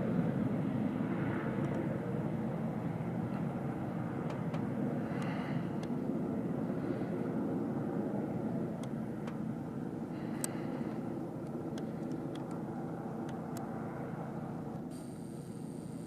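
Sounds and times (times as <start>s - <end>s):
turboprop plane engine rumble: 0.0s - 16.0s
faint ticks: 10.3s - 10.6s.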